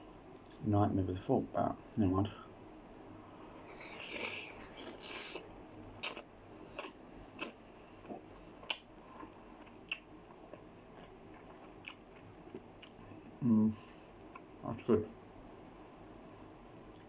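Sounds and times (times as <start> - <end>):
wet chewing clicks: 6.0 - 8.9.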